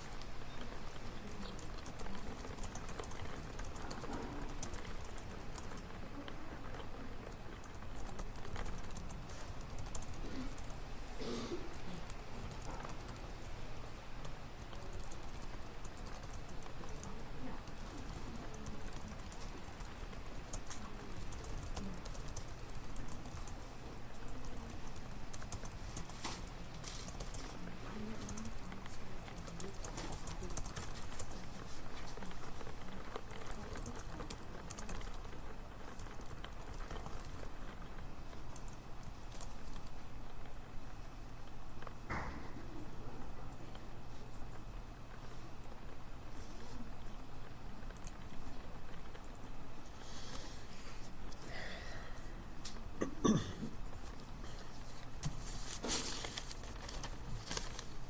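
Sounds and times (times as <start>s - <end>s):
steady low hum: 0.0s - 58.0s
keyboard typing clicks: 0.4s - 10.8s, 14.2s - 37.8s.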